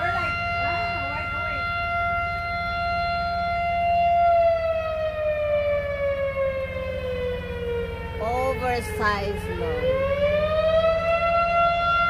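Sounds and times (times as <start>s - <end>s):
engine rumble: 0.0s - 12.0s
siren winding down: 0.0s - 12.0s.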